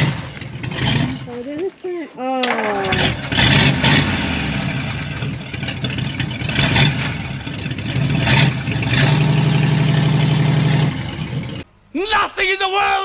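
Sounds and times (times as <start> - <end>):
car engine idling: 0.0 - 1.6, 2.4 - 11.9.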